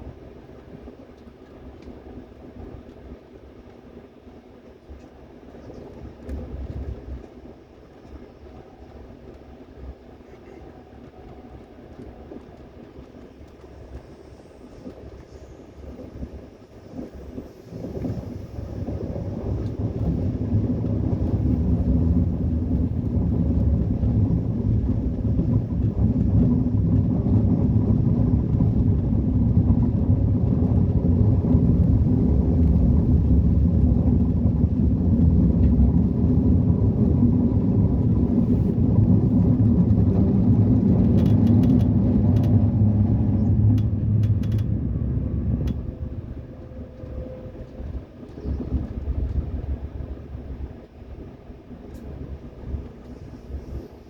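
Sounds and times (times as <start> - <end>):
train rumbling by: 0.0 - 54.0.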